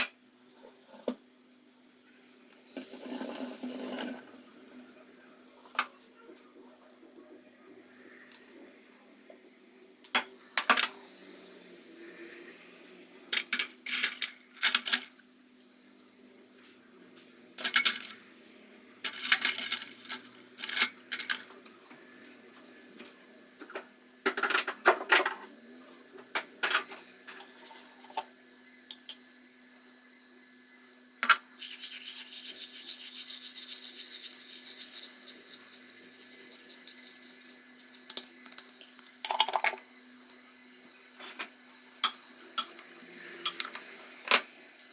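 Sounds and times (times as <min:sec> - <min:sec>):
rapid rasping noise: 0:31.6 - 0:38.0
utensils and dishes clicking: 0:43.4 - 0:44.4.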